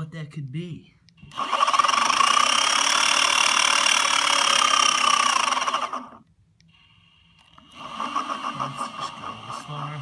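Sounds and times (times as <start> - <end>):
electric motor whine: 1.3 - 6.2, 7.5 - 10.0.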